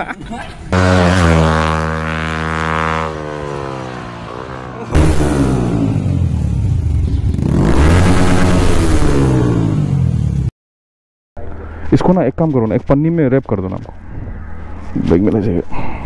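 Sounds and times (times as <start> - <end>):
motorcycle engine revving: 0.7 - 10.5
motorcycle engine running: 0.8 - 10.5.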